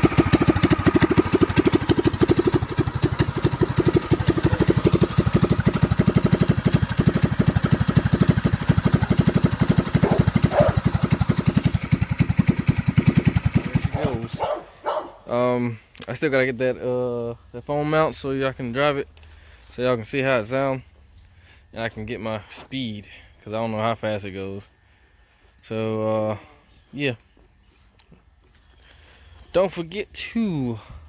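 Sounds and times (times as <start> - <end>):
go-kart engine running loudly: 0.0 - 14.4.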